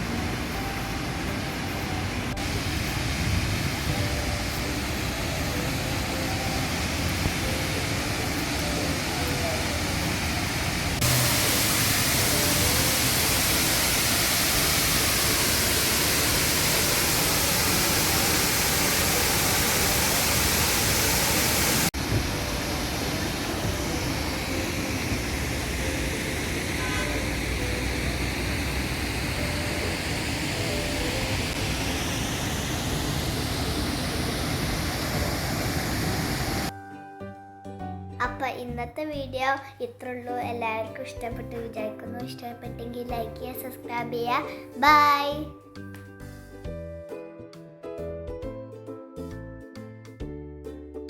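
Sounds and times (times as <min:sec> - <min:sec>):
waterfall rushing: 0:00.0 - 0:36.7.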